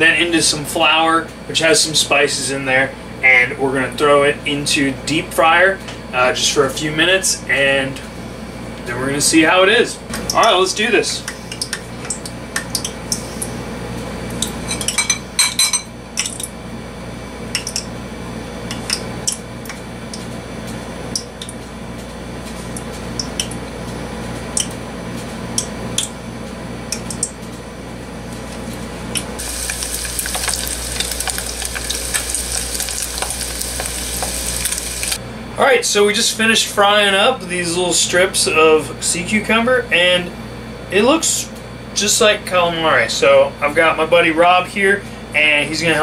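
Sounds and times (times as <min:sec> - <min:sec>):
steady hum: 0:00.0 - 0:46.0
utensils clinking on ceramic bowls: 0:14.7 - 0:16.5
hot oil sizzling: 0:29.4 - 0:35.2.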